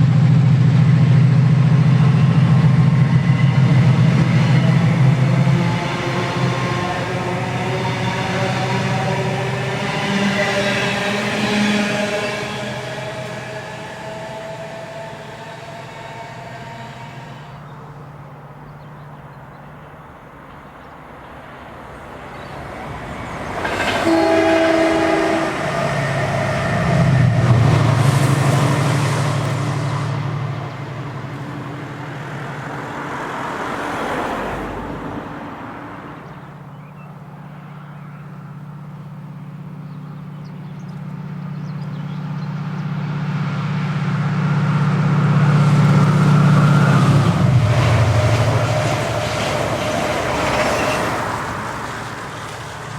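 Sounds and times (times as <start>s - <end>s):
diesel engine drone: 0.0s - 20.6s, 21.9s - 52.9s
train horn blast: 1.7s - 17.9s, 23.4s - 32.4s, 41.9s - 52.5s.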